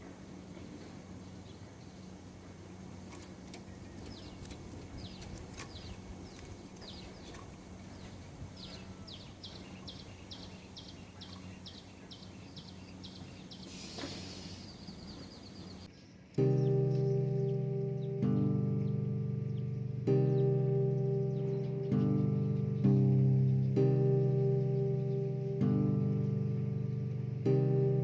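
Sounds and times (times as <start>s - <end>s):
small bird calling: 0.0s - 27.1s
faint low hum: 0.0s - 28.0s
brief rustle: 13.7s - 14.7s.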